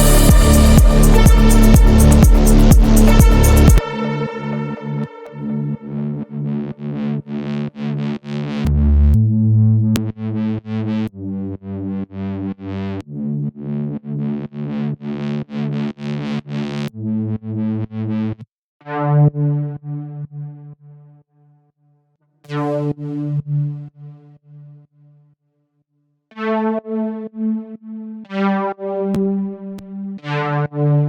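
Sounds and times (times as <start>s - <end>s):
synthesizer chord stabs: 0.0s - 6.6s
held synthesizer chord: 0.0s - 6.9s.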